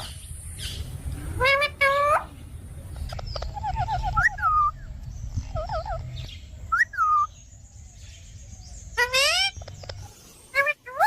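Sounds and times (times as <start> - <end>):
parrot chick calling: 3.0 - 4.8, 5.5 - 7.3, 8.9 - 11.0.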